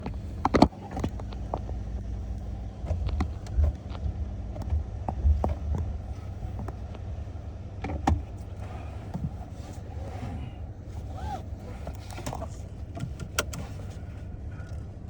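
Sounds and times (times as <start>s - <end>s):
light clicks and knocks: 0.0s - 9.8s
car cabin rumble: 0.0s - 15.0s.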